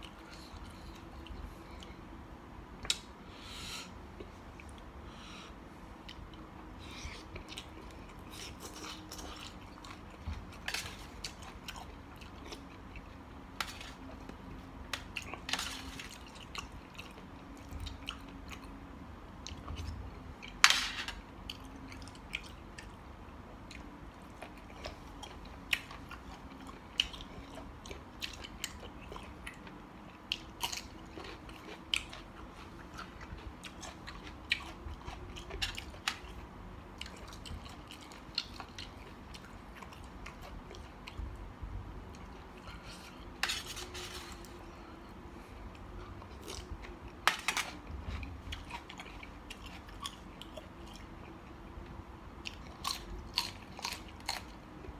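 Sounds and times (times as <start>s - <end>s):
person chewing food: 0.0s - 2.2s, 2.8s - 20.6s, 21.2s - 41.4s, 42.0s - 54.9s
food crunching: 23.6s - 41.2s, 52.4s - 54.9s.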